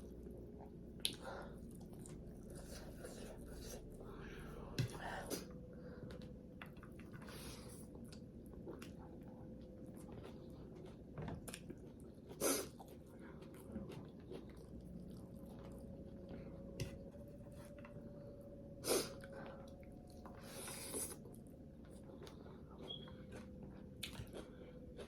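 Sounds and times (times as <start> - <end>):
wet chewing: 6.1 - 17.9, 19.0 - 25.0.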